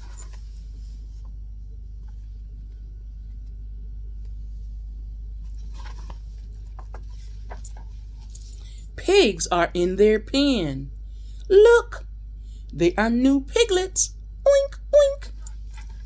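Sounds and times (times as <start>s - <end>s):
steady low hum: 0.0s - 16.0s
paper rustling: 5.6s - 7.9s.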